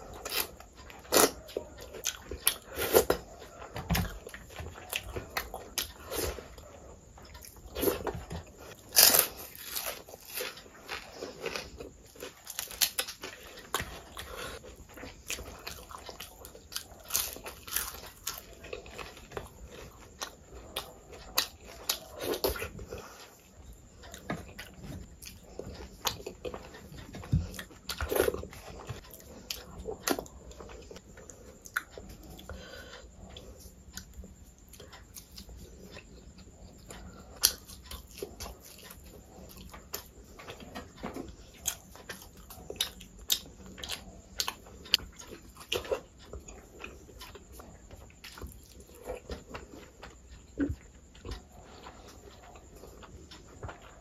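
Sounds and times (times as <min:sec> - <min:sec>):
chewing with wet mouth clicks: 0:00.0 - 0:54.0.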